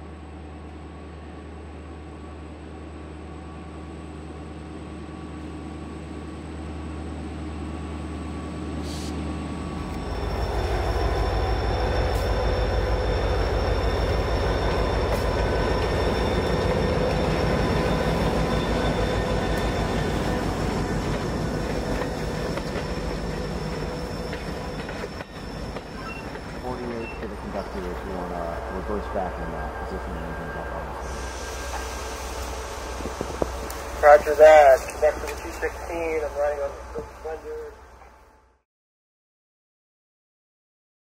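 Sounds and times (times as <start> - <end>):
railcars rumbling: 0.0 - 38.6
high wheel squeal: 10.0 - 38.1.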